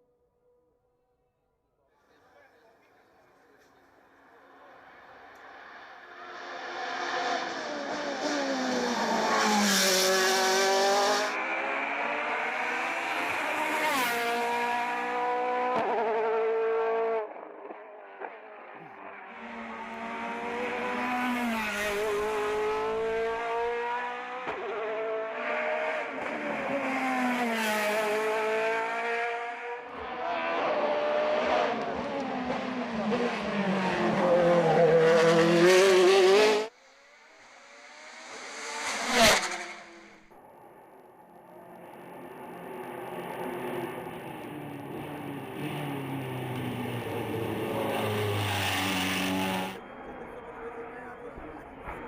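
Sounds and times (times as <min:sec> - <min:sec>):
race car engine at full throttle: 0:02.3 - 0:52.0
car passing by quickly: 0:04.7 - 0:40.3, 0:41.9 - 0:50.0.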